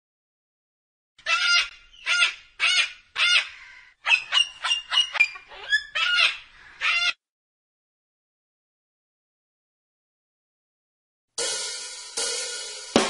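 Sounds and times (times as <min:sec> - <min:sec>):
cockatoo squawking: 0:01.2 - 0:07.2.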